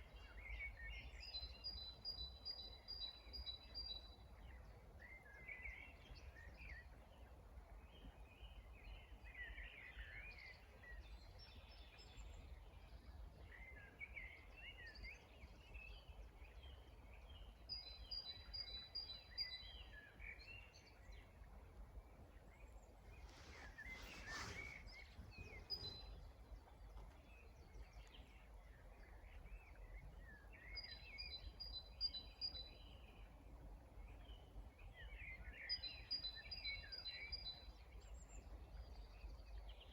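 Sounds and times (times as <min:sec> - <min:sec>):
songbirds singing: 0:00.0 - 0:39.9
whoosh of gust or rustle: 0:23.1 - 0:26.2.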